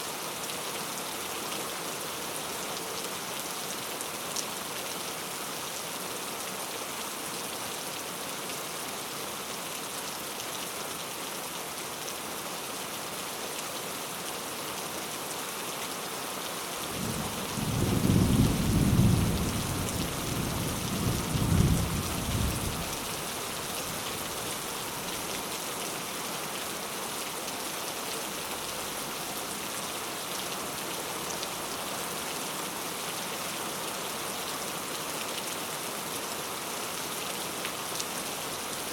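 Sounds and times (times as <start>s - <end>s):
heavy rain: 0.0s - 38.9s
thunder rumbling: 20.9s - 22.9s.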